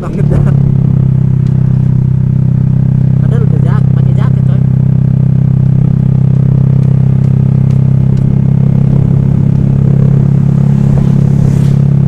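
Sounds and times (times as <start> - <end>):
scooter engine running steadily: 0.0 - 12.0.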